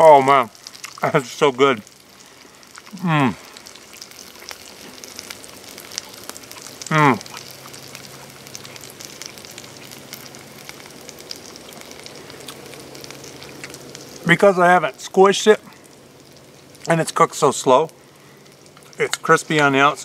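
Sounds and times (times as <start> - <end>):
burger patty sizzling in skillet: 0.0 - 20.0
man humming: 2.9 - 3.4, 6.8 - 7.3.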